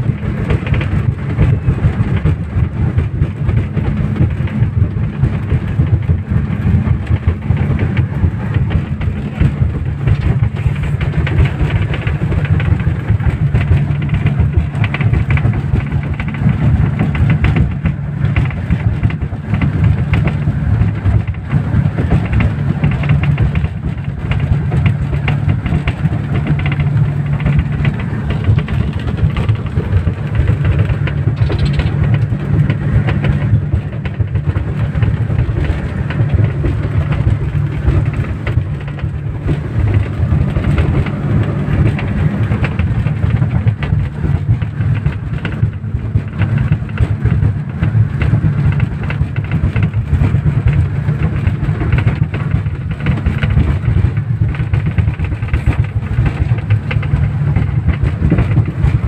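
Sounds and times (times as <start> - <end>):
speedboat engines droning: 0.0 - 53.2.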